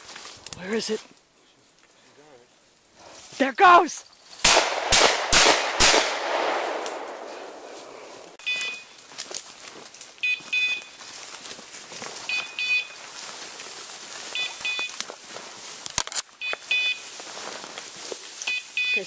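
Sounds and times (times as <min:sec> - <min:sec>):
walking through brush: 0:00.0 - 0:19.0
high double beeps: 0:08.4 - 0:09.0, 0:10.2 - 0:11.0, 0:12.3 - 0:12.9, 0:14.3 - 0:14.9, 0:16.4 - 0:17.0, 0:18.5 - 0:19.0.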